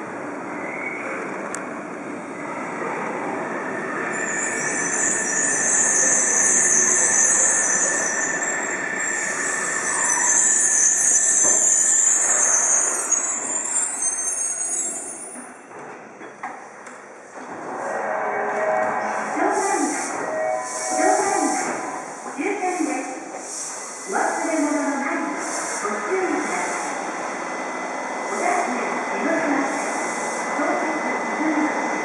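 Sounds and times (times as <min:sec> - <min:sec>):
train wheels squealing: 0:03.8 - 0:15.8.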